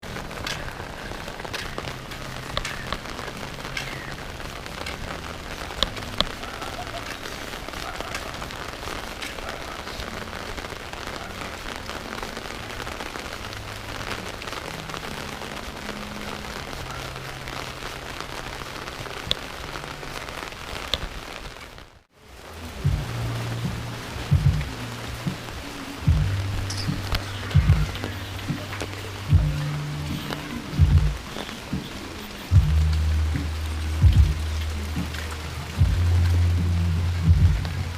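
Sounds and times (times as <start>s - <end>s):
rain pattering: 0.0s - 37.9s
sharp drip ticks: 0.1s - 10.2s.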